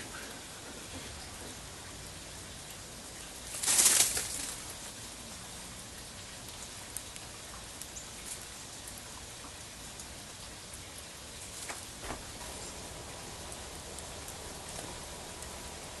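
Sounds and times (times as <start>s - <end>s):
steady hiss: 0.0s - 16.0s
bird wings flapping: 3.5s - 4.8s, 11.5s - 16.0s.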